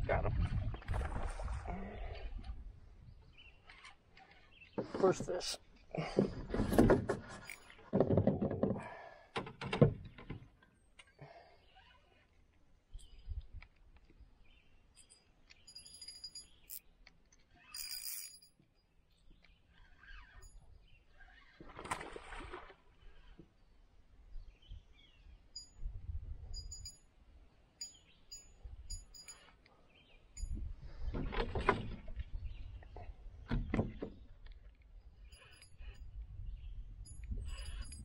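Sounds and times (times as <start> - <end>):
small birds chirping: 3.0 - 5.0, 27.8 - 30.6, 32.3 - 38.0.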